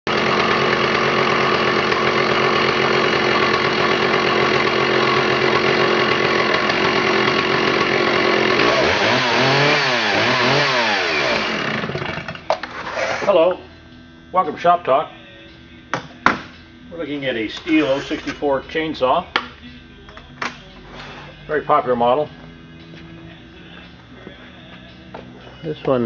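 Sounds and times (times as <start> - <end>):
chainsaw running loudly: 0.1 - 13.6, 14.2 - 19.3.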